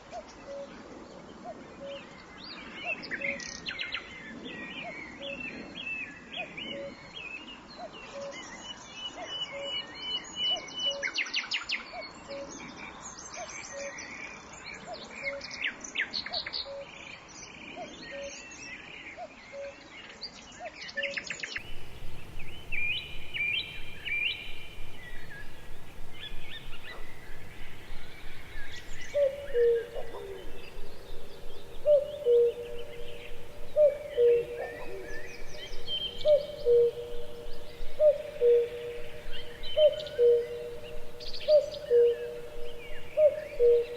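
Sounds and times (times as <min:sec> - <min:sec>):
birds chirping: 0:21.6 - 0:43.9
low whistled calls: 0:21.6 - 0:43.9.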